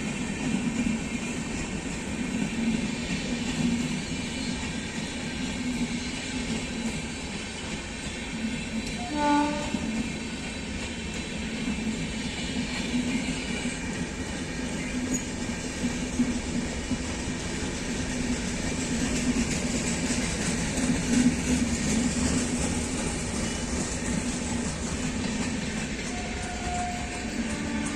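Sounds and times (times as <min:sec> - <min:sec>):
train rumbling: 0:00.0 - 0:27.9
train horn blast: 0:08.9 - 0:10.0, 0:26.0 - 0:27.9.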